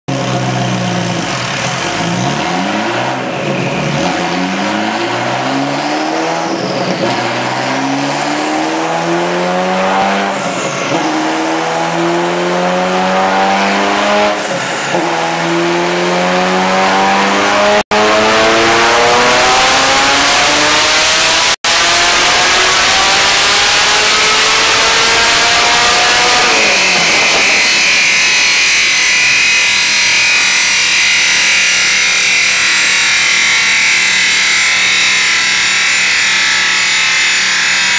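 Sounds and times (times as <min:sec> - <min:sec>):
car engine revving through gears: 0:00.1 - 0:30.0.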